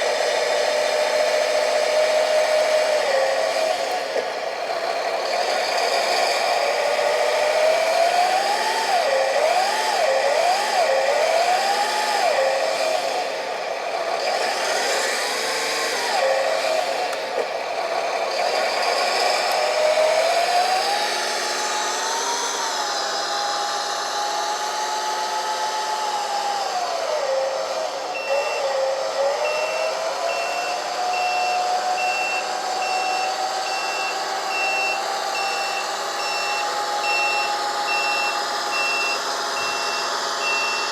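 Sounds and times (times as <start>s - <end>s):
model tractor whine: 0.0s - 40.9s
reversing beeper: 28.1s - 40.9s.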